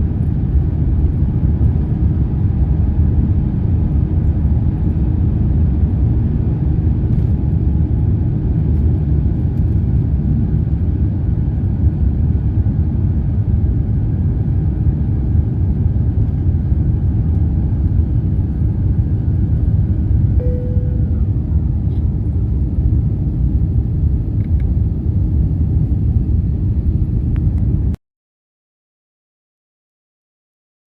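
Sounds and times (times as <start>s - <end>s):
airplane cabin rumble: 0.0s - 28.0s.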